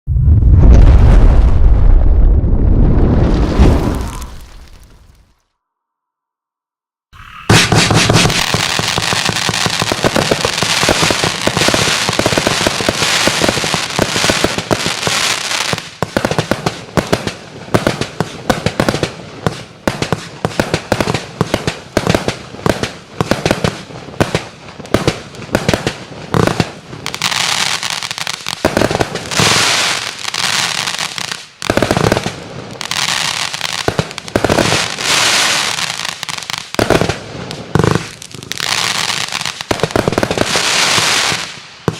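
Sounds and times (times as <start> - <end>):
fireworks crackling: 0.4 - 5.4, 7.2 - 41.9
fireworks battery shots: 7.2 - 13.6.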